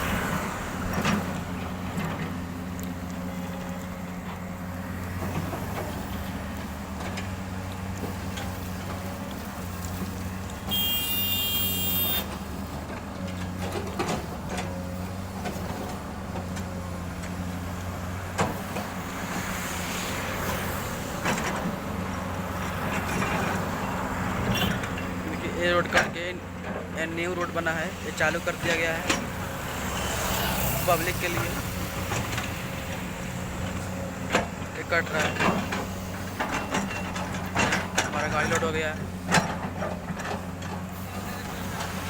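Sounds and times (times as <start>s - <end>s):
excavator diesel engine running: 0.0s - 42.0s
loud high-pitched horn: 10.7s - 12.3s.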